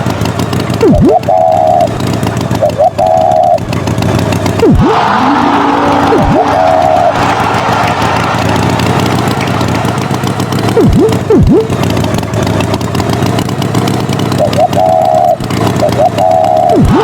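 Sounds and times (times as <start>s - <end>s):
engine running: 0.0s - 17.0s
swooping pitch dives: 0.7s - 3.7s, 4.6s - 12.4s, 14.3s - 17.0s
warbling tone: 0.7s - 3.8s, 4.5s - 12.8s, 14.2s - 17.0s.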